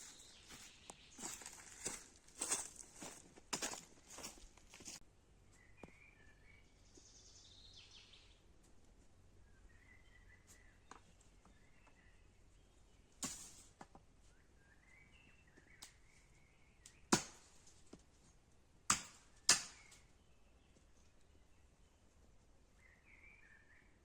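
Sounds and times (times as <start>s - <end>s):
faint bird chirps: 0.0s - 2.1s, 5.4s - 8.5s, 9.4s - 13.0s, 14.2s - 17.1s, 22.7s - 24.0s.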